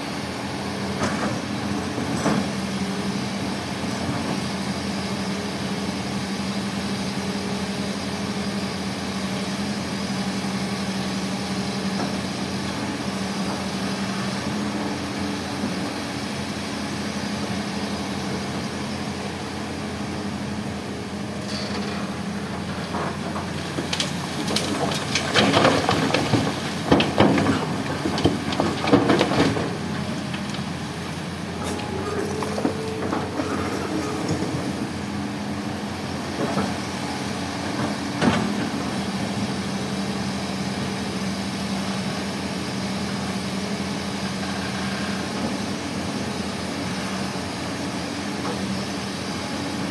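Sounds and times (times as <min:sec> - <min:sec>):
heavy diesel engine running: 0:00.0 - 0:49.9
rock clattering into truck bed: 0:23.1 - 0:34.8.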